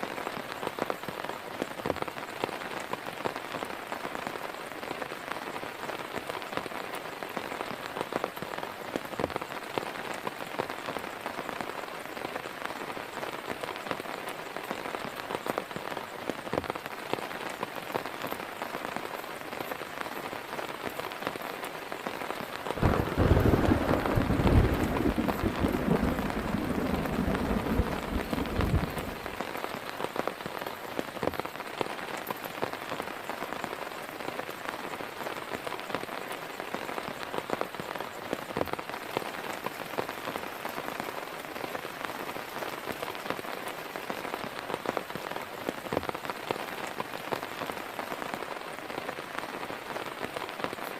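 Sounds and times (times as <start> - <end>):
heavy rain falling: 0.0 - 50.9
deep rumble of thunder: 22.8 - 29.4.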